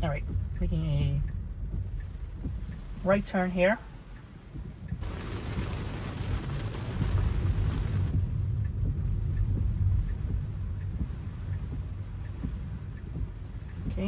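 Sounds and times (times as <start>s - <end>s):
rain noise: 0.0s - 14.0s
tyre and road rumble: 0.0s - 14.0s
faint regular ticks: 1.2s - 5.0s, 8.1s - 14.0s.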